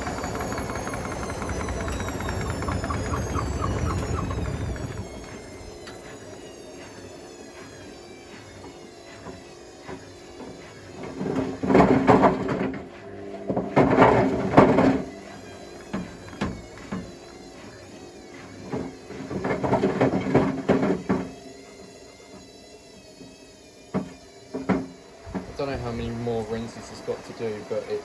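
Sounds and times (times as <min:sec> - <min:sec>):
bricks tumbling in washing machine: 0:11.0 - 0:15.2, 0:18.7 - 0:21.3.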